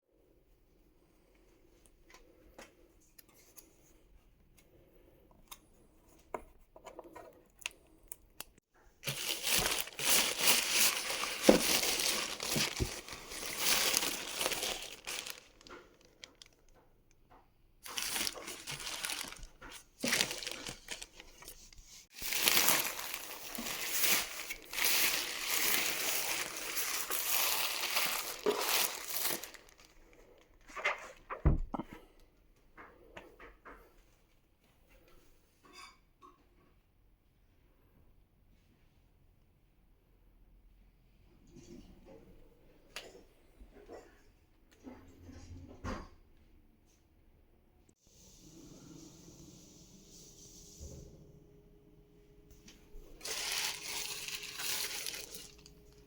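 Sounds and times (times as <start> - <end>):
wrapping crinkling and tearing: 9.0 - 16.8, 17.8 - 31.0, 53.1 - 56.0.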